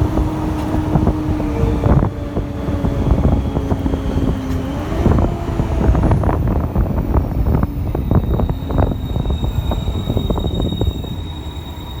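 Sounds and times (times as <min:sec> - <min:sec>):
bus engine rumble: 0:00.0 - 0:12.0
faint high whistle: 0:08.0 - 0:12.0.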